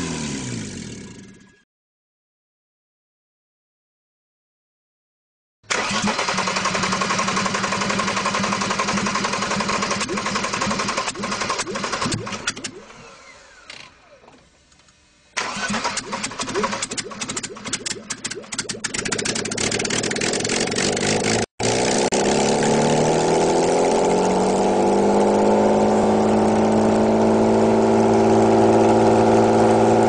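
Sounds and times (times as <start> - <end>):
engine winding down: 0.0 - 1.6, 5.7 - 14.3, 15.4 - 30.0
car engine running: 18.4 - 30.0.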